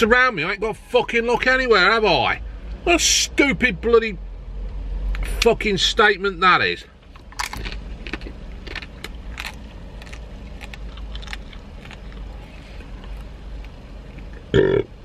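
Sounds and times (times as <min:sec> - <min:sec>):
crunching and chewing cookie: 0:07.2 - 0:14.5.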